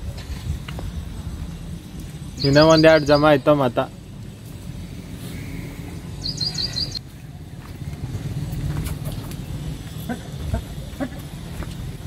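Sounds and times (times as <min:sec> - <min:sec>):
small bird chirping high notes: 0:02.3 - 0:03.7, 0:06.2 - 0:07.0.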